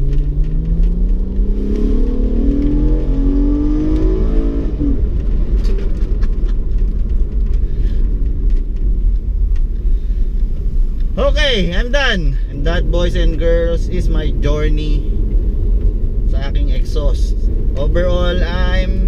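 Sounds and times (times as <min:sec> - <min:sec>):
car engine accelerating: 0:00.0 - 0:11.6.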